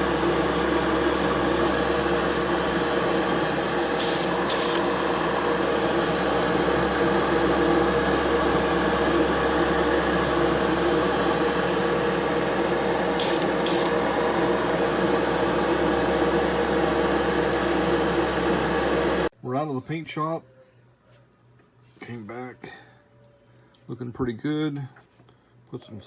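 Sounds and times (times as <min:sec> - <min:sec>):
steady mechanical hum: 0:00.0 - 0:26.0
spray paint hisses: 0:04.0 - 0:04.8, 0:13.2 - 0:13.9.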